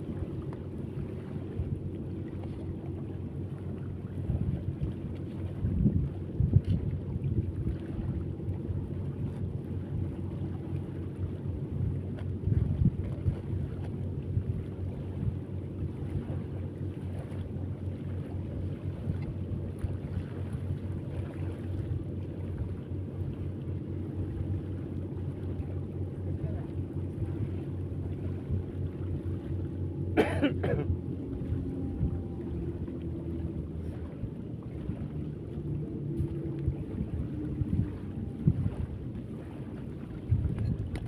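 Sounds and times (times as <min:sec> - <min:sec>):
wind on microphone: 0:00.0 - 0:17.4, 0:31.2 - 0:41.0
steady low rumble: 0:00.0 - 0:41.0.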